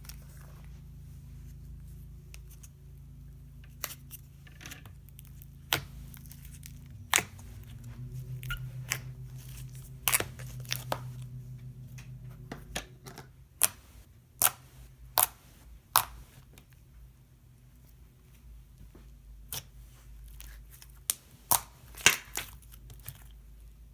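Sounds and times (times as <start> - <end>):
steady low hum: 0.0 - 17.7.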